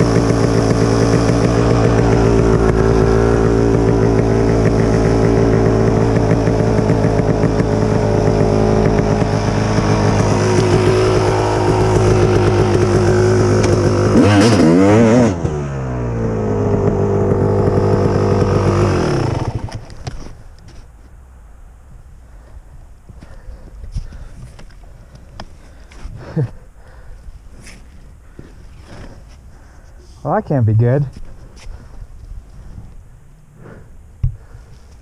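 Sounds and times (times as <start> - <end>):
dirt bike engine running: 0.0 - 20.1.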